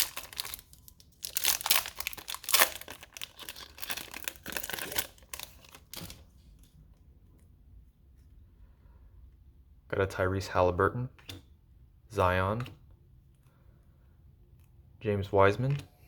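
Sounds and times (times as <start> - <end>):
foil pack tearing and crinkling: 0.0 - 6.2.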